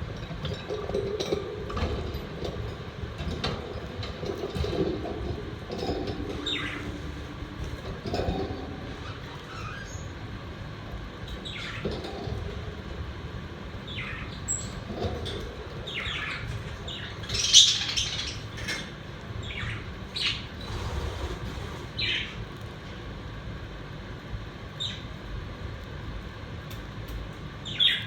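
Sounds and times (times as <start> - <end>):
budgerigars chirping and squawking: 6.3 - 7.3, 9.0 - 10.1, 11.4 - 12.1, 13.9 - 15.1, 15.8 - 18.8, 19.4 - 22.4, 27.6 - 28.0.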